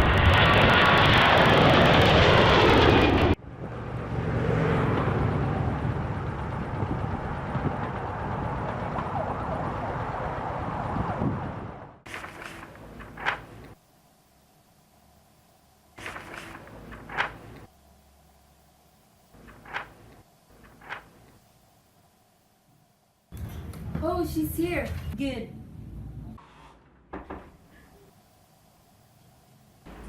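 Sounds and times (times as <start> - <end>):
road vehicle noise: 3.1 - 12.0.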